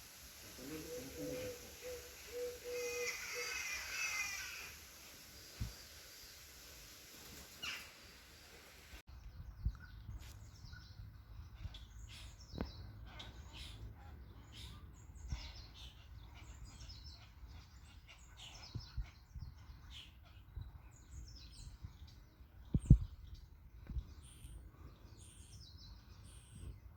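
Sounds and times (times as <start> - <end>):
small birds chirping: 9.1 - 26.9.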